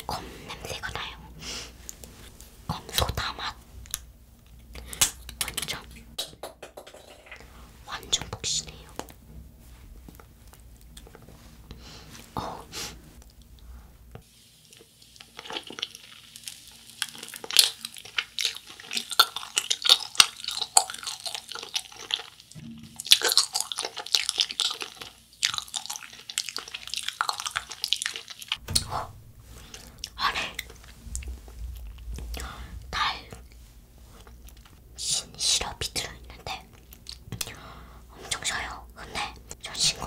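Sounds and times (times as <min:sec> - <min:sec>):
chewing gummy candy: 0:10.2 - 0:11.3, 0:14.7 - 0:28.6, 0:36.4 - 0:37.6.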